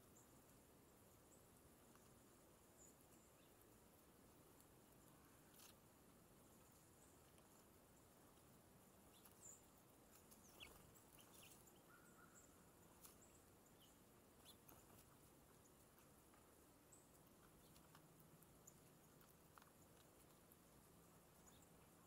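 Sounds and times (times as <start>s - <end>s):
small ticks: 1.3s - 22.0s
faint high bird chirps: 9.0s - 16.1s, 21.3s - 22.0s.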